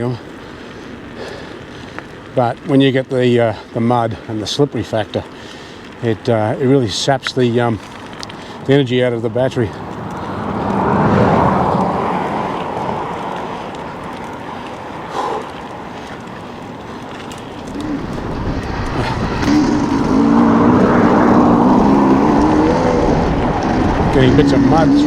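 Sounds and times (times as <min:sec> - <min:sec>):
bike tyre noise on trail: 0:00.0 - 0:25.0
rushing wind: 0:07.5 - 0:25.0
wavering droning hum: 0:09.8 - 0:25.0.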